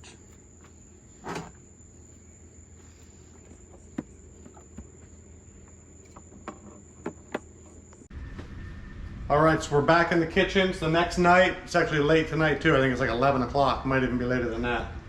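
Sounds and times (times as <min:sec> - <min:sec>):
night insects trilling: 0:00.0 - 0:08.1.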